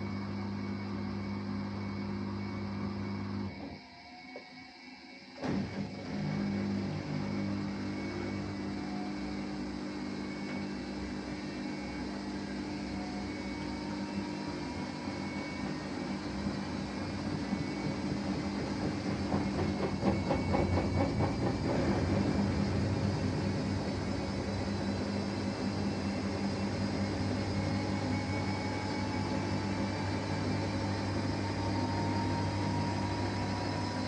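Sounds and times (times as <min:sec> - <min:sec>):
washing machine humming: 0:00.0 - 0:03.8, 0:05.4 - 0:34.0.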